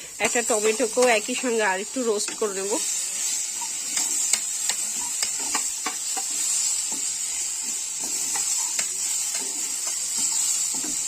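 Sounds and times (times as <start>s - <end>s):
food sizzling in a pan: 0.0s - 11.0s
spatula stirring and scraping: 0.5s - 11.0s
spatula clicking against pan: 3.6s - 6.3s, 8.3s - 11.0s.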